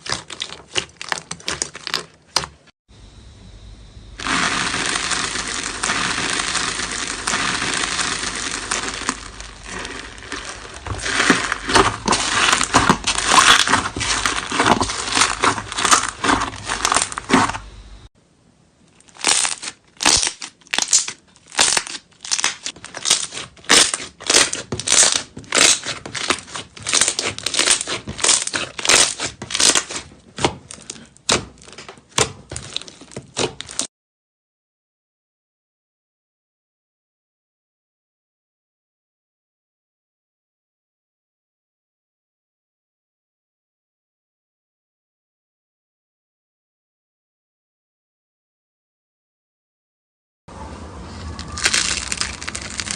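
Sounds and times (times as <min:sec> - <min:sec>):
slime crackling and crinkling: 0:00.0 - 0:02.7, 0:04.2 - 0:17.7, 0:18.9 - 0:33.9, 0:51.1 - 0:52.9
slime squishes and pops: 0:05.8 - 0:17.6, 0:19.0 - 0:33.9, 0:51.5 - 0:52.9.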